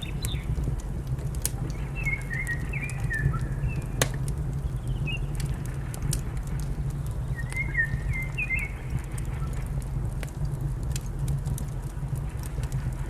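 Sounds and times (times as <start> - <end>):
small birds chirping: 0.0 - 0.8, 1.5 - 5.6, 6.9 - 9.6
wood fire crackling: 0.0 - 13.0.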